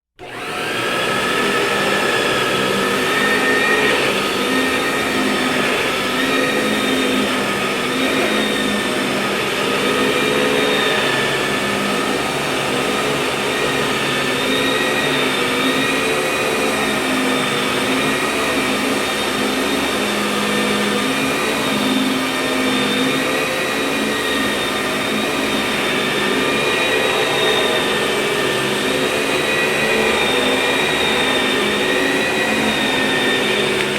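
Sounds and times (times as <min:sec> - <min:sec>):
vacuum cleaner running: 0:00.1 - 0:33.9.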